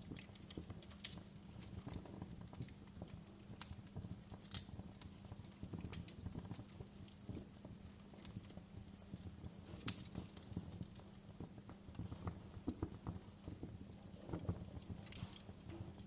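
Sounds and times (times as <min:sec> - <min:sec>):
low rumble of flames: 0:00.0 - 0:16.0
wood fire pops and snaps: 0:00.0 - 0:16.0.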